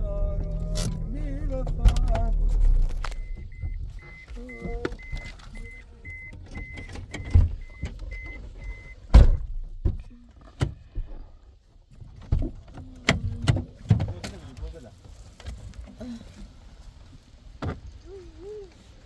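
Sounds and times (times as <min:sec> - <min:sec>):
short high electronic beeps: 0:03.1 - 0:06.8.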